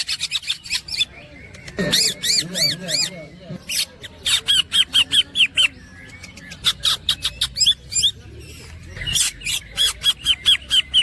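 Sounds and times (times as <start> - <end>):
bird singing clicky notes: 0.6 - 2.1.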